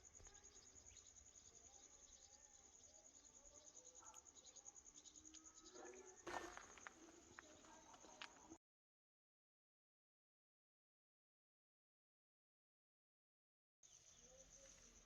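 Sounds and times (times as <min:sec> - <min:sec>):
crickets trilling: 0:00.0 - 0:08.6, 0:13.9 - 0:15.0.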